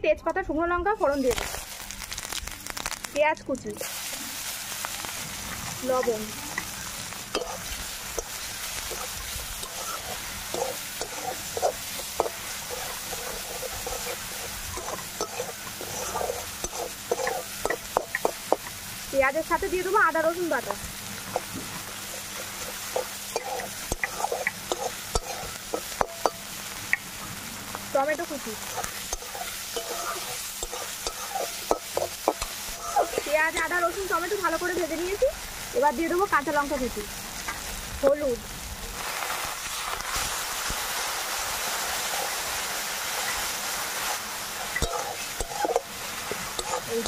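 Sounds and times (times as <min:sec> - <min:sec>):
onions sizzling in a wok: 0:00.0 - 0:47.0
spatula scraping pan: 0:07.4 - 0:18.7, 0:21.3 - 0:26.5, 0:28.5 - 0:33.8, 0:44.6 - 0:47.0.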